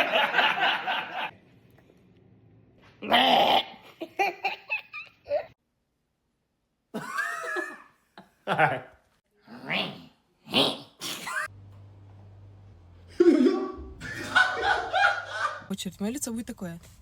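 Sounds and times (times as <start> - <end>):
people laughing: 0.0 - 1.3, 13.1 - 15.7.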